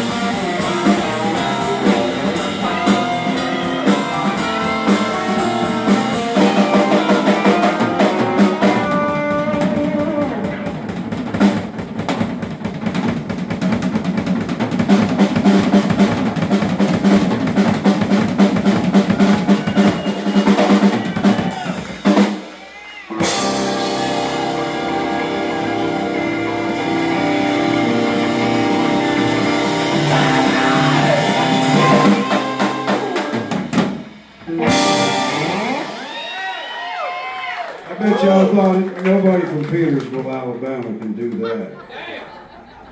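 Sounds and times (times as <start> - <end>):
electric guitar: 0.0 - 11.7, 23.1 - 37.2
bass guitar: 0.0 - 12.0, 23.1 - 37.0
drum kit: 0.0 - 38.7.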